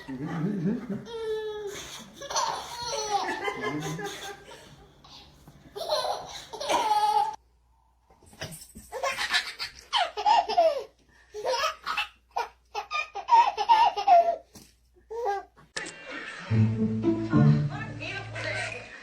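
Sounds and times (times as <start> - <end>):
baby laughing hard: 1.0 - 4.6, 5.8 - 7.4, 8.9 - 14.4.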